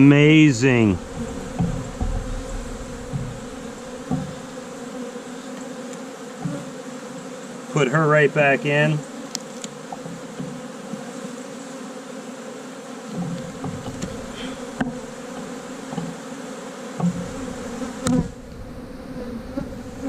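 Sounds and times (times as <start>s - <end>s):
honey bees buzzing: 0.0s - 20.0s
light knocks on hive: 1.0s - 5.0s, 9.3s - 11.0s, 13.1s - 16.3s, 17.0s - 18.7s.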